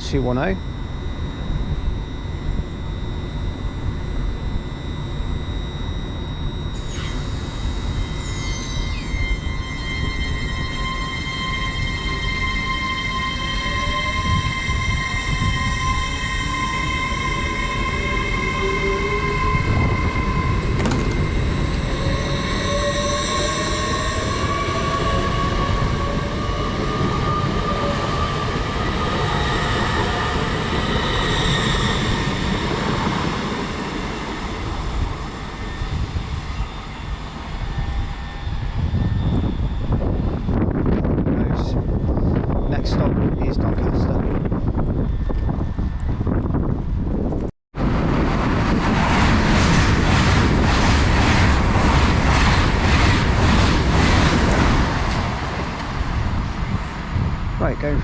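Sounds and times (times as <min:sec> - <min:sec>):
wheels rumbling on rail: 0:00.0 - 0:58.0
electric train motors whining: 0:00.2 - 0:42.7.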